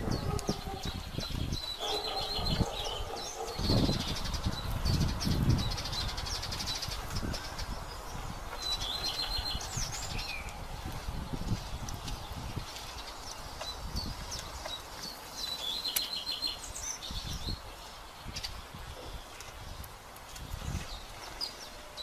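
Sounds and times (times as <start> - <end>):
small birds chirping: 0.0 - 22.0
bird trill: 0.1 - 10.5.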